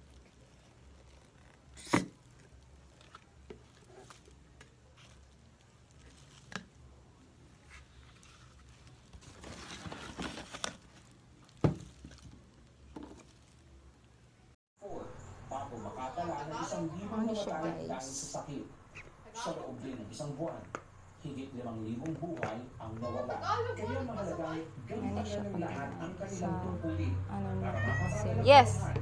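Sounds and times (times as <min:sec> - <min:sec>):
rustling and crinkling: 0:00.0 - 0:14.3.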